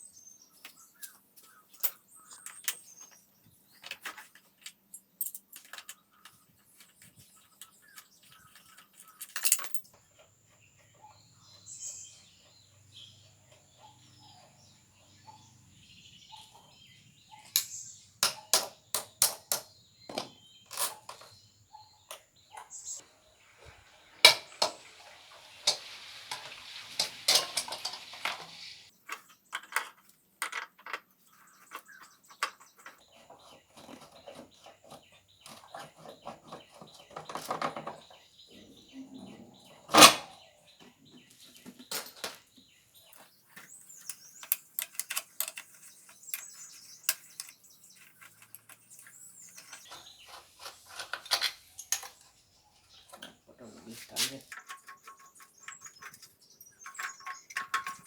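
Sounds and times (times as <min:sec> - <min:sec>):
metal tools clinking and knocking: 0:03.8 - 0:07.1, 0:08.2 - 0:10.0, 0:17.4 - 0:21.4, 0:25.7 - 0:31.0, 0:44.0 - 0:52.3, 0:54.5 - 0:58.0
hiss: 0:23.1 - 0:28.9.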